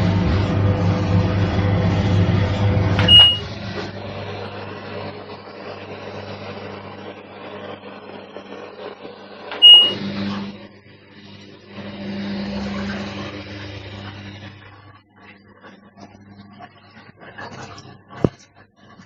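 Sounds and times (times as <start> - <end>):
washing machine humming: 0.0 - 18.4
high control panel beep: 3.0 - 3.5, 9.6 - 10.0.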